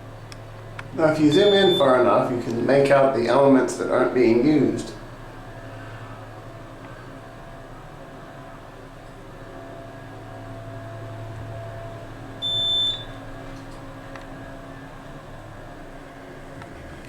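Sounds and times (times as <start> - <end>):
elevator humming: 0.0 - 17.0
short electronic beep: 1.3 - 1.9, 12.4 - 13.2.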